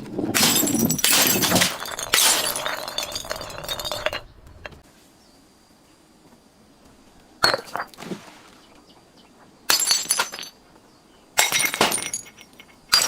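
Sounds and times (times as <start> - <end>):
crackle of glass shards: 0.4 - 4.2
glass smashing: 0.4 - 4.3, 9.7 - 10.6, 11.4 - 13.0.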